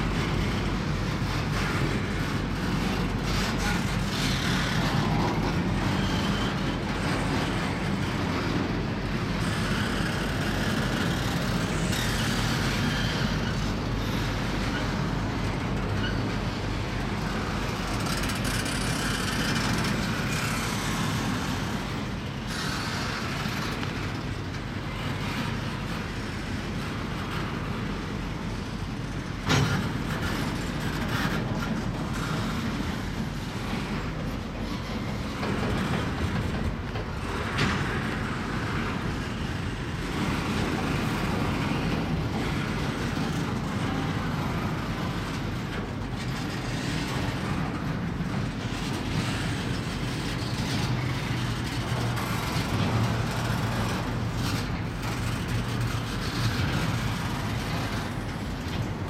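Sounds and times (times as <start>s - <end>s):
freight train rumbling and rattling: 0.0s - 59.0s.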